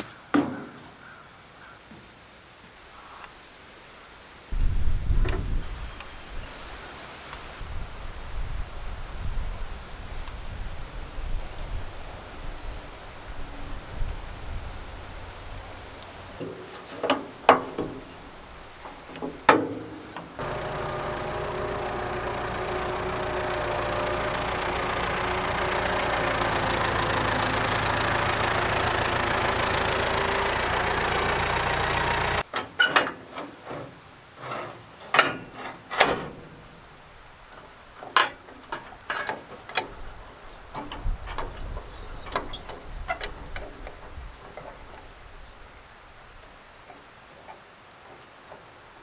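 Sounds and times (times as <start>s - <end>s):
engine running: 20.2s - 32.5s.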